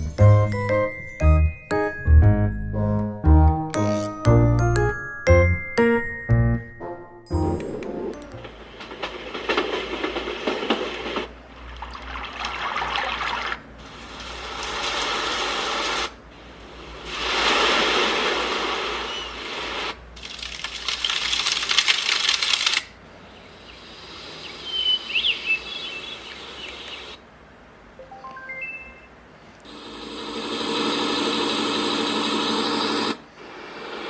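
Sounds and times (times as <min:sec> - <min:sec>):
white noise machine hissing: 0:13.7 - 0:20.4, 0:23.0 - 0:28.0, 0:29.4 - 0:34.0
short chirping whistles: 0:24.4 - 0:27.0.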